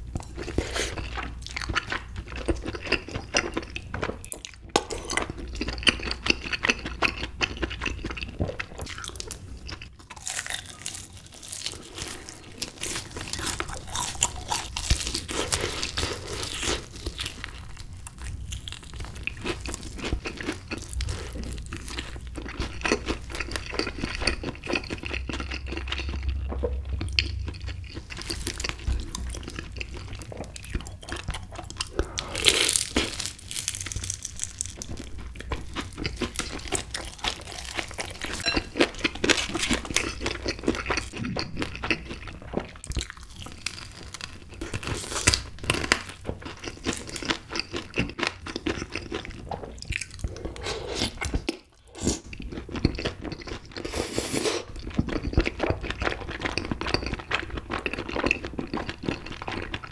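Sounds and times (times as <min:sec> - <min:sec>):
crunching fried chicken: 0:00.0 - 0:53.9, 0:54.6 - 0:59.9
wet mouth sounds: 0:41.0 - 0:42.4.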